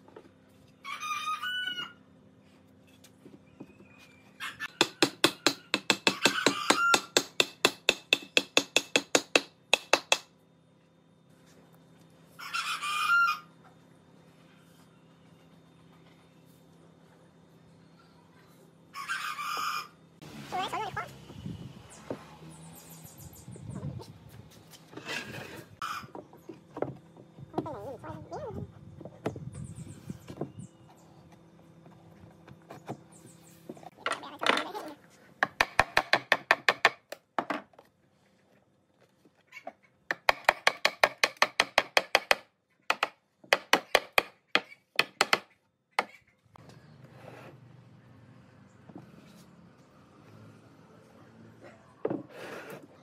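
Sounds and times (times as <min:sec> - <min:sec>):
hammer striking nails into wood: 0:04.8 - 0:10.3, 0:35.4 - 0:37.1, 0:40.1 - 0:46.1
chickens clucking: 0:25.8 - 0:26.5
board scraping across bench: 0:47.0 - 0:47.6.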